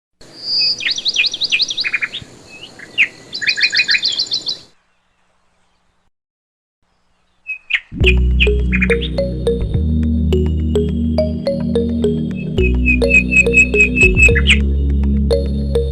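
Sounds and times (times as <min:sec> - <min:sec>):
birds chirping and trilling: 0:00.2 - 0:06.1, 0:06.8 - 0:09.5, 0:12.1 - 0:14.7
music: 0:08.0 - 0:15.9.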